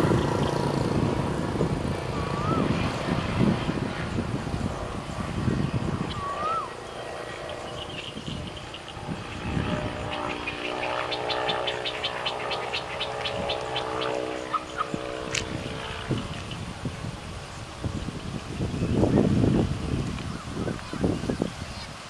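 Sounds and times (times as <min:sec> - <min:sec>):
distant engine droning: 0:00.0 - 0:22.0
whistled call: 0:02.2 - 0:02.7, 0:06.1 - 0:06.8.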